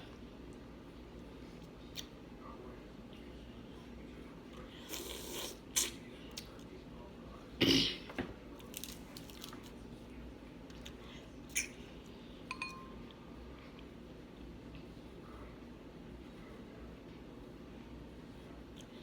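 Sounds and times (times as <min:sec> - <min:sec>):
short ringing clink: 0:12.5 - 0:13.0.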